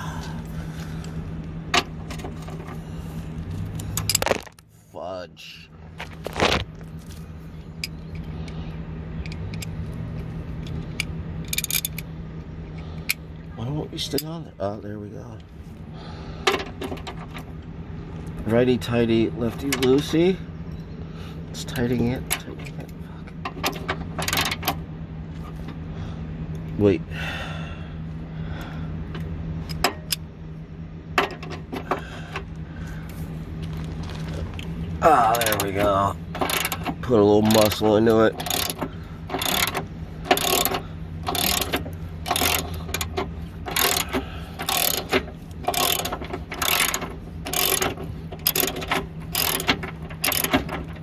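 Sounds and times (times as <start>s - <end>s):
steady low hum: 0.0s - 51.0s
wrench clicking on metal: 10.6s - 12.1s, 35.4s - 51.0s.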